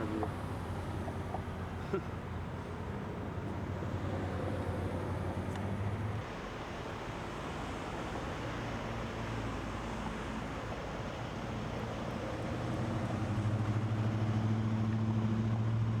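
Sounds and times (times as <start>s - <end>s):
road traffic rush: 0.0s - 6.2s
vehicle engine hum: 12.1s - 16.0s.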